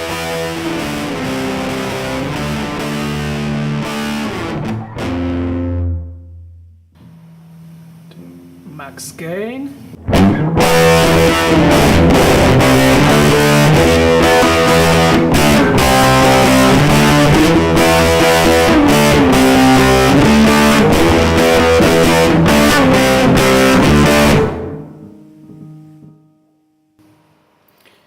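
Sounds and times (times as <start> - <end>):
distorted electric guitar riff: 0.0 - 27.6.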